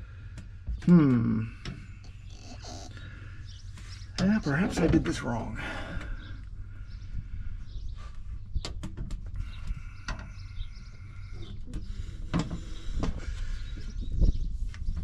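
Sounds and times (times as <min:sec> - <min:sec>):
low steady background rumble: 0:00.0 - 0:15.0.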